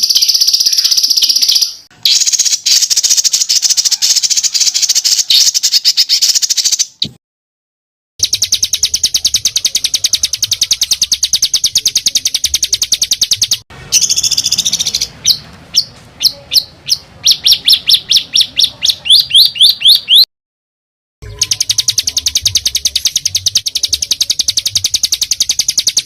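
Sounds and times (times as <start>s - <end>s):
songbird fast trill: 0.0s - 7.1s, 8.2s - 20.3s, 21.2s - 26.0s
bird sharp falling notes: 21.2s - 24.2s.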